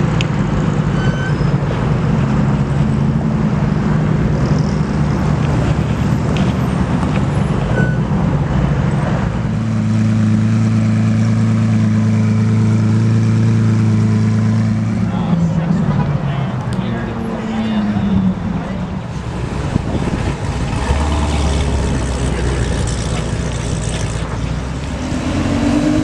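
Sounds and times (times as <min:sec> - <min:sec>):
road noise: 0:00.0 - 0:26.0
car engine running: 0:10.0 - 0:25.0.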